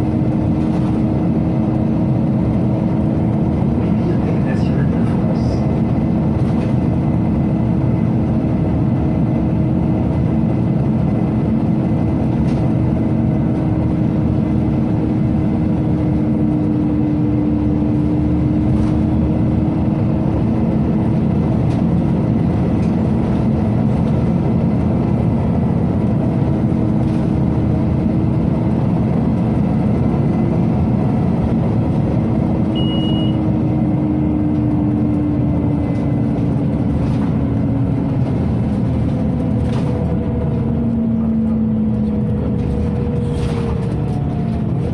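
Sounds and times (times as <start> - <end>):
bus engine and road noise: 0.0 - 44.9
bus ventilation drone: 0.0 - 44.9
faint beep: 32.8 - 33.4.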